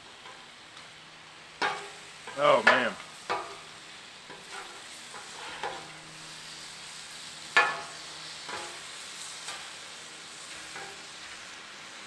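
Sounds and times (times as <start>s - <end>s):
steak sizzling on a griddle: 0.0s - 12.0s
metallic clinks on griddle: 1.6s - 6.0s, 7.4s - 9.8s, 10.4s - 11.4s.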